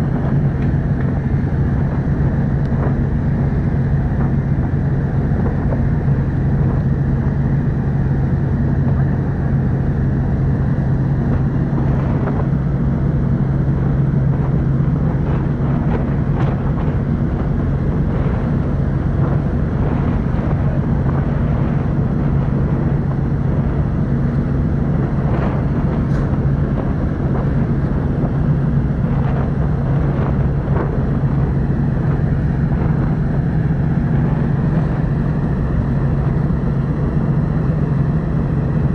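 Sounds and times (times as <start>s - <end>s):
rushing water wash: 0.0s - 38.9s
ship engines droning: 0.0s - 38.9s.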